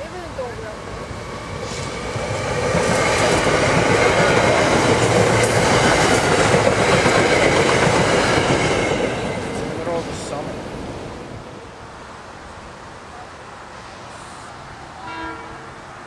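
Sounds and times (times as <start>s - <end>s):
train wheels rushing on rail: 0.0s - 16.0s
wheels clickety-clack: 2.6s - 9.8s.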